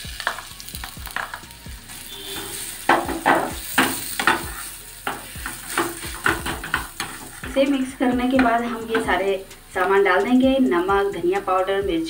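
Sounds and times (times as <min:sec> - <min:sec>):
paste sizzling in hot oil: 0:00.0 - 0:10.9
spatula scraping a pan: 0:01.1 - 0:10.0.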